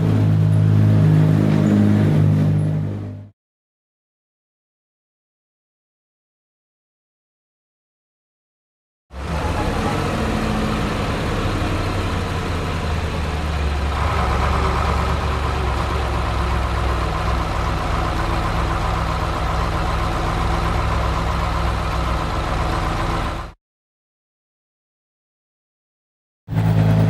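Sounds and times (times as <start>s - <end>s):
vehicle engine humming: 0.0s - 3.3s, 9.1s - 23.6s.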